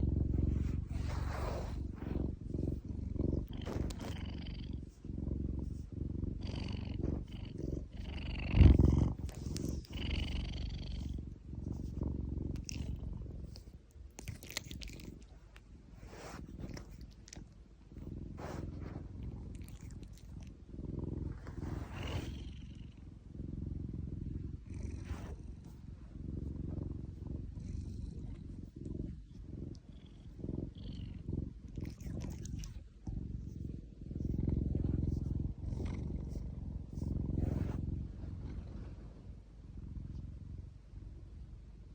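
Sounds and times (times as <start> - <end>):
cat purring: 0.0 - 41.9
rustling noises: 0.3 - 5.0.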